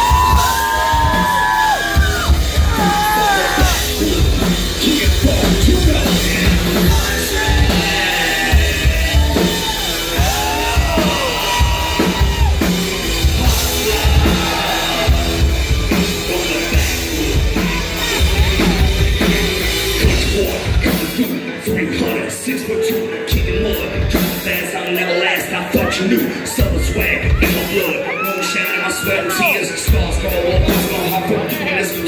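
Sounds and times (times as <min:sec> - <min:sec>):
bending lead melody: 0:00.0 - 0:28.1
country rock band playing: 0:00.0 - 0:32.0.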